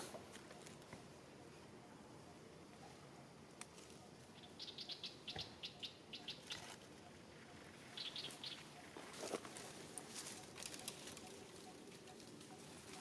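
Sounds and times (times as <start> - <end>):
small bird chirping: 4.0 - 13.0
soft rustle: 8.3 - 13.0.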